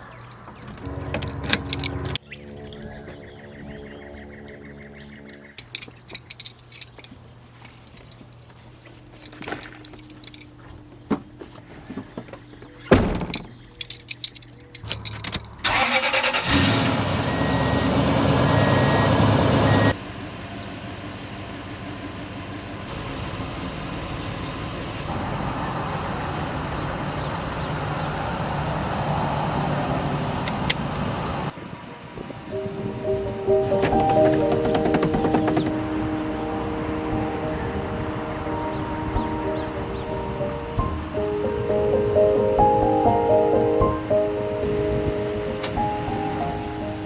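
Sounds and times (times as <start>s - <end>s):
car driving noise: 0.0s - 47.0s
car engine revving: 32.6s - 43.4s.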